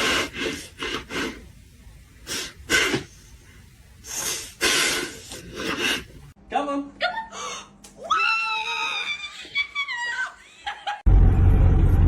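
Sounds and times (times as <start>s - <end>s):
breathy sneeze-like bursts: 4.1s - 6.2s.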